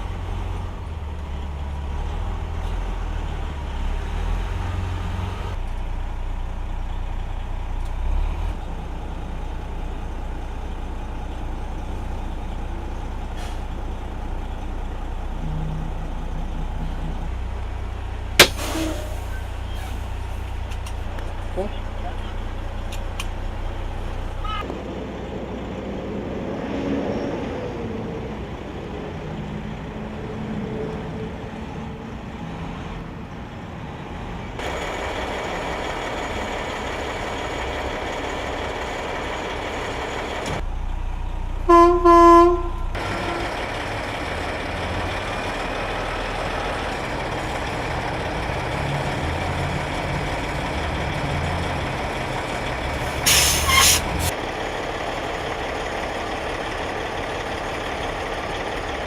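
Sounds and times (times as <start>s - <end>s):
truck diesel engines running: 0.0s - 59.0s
truck horn blasts: 18.4s - 19.5s, 41.6s - 43.6s
air-brake release hiss: 18.4s - 20.2s, 53.0s - 54.3s.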